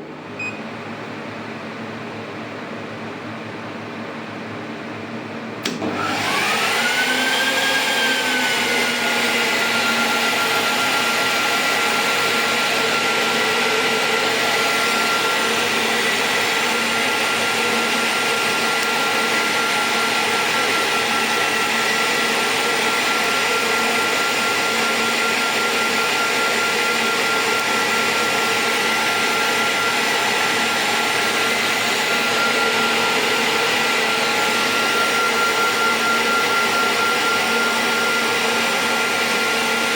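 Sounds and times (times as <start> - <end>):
cooling fan whine: 0.0 - 39.9
power switch click: 5.6 - 5.9.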